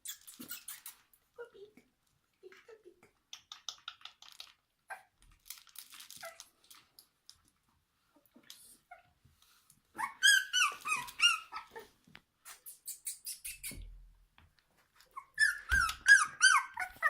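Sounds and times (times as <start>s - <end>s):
puppies whimpering and squealing: 10.0s - 11.9s, 15.1s - 17.0s.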